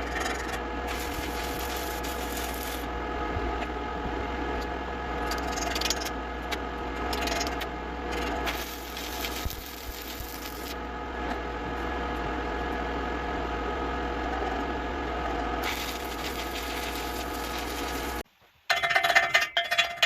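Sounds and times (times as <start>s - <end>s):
constant hum: 0.0s - 20.0s
welding arc crackling and buzzing: 0.1s - 2.9s, 7.1s - 10.8s, 15.6s - 18.2s.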